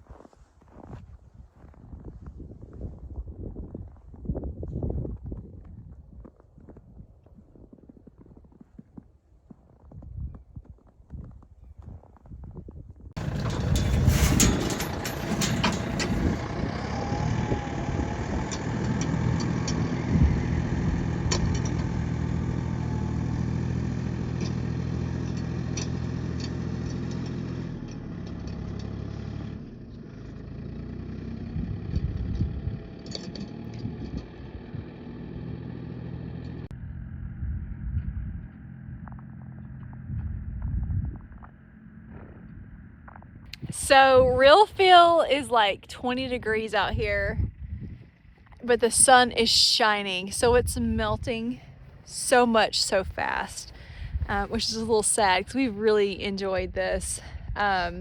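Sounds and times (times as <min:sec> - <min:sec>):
knocks and rattles: 0:13.2 - 0:20.6
vehicle engine idling: 0:13.2 - 0:45.0, 0:45.6 - 0:58.0.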